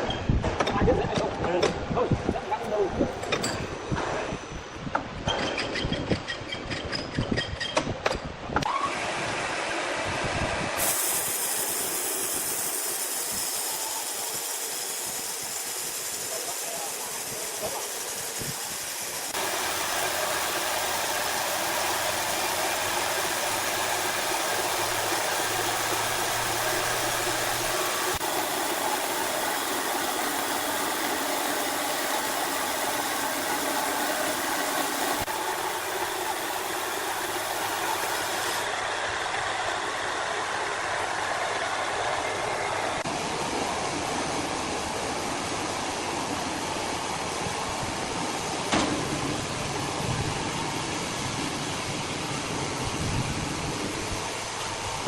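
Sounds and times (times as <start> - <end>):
engine-driven wood saw: 8.6 - 55.0.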